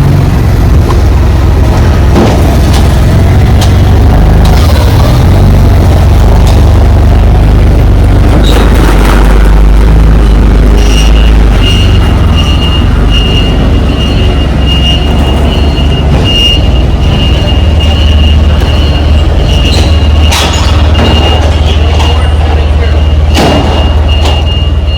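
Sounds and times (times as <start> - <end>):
truck engine humming: 0.0 - 24.9.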